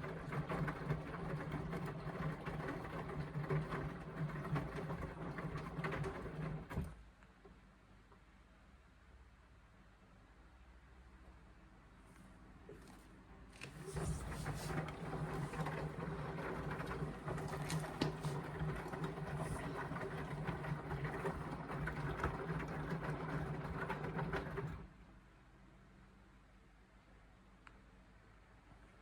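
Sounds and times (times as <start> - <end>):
washing machine drum turning: 0.0 - 6.9, 13.8 - 24.8.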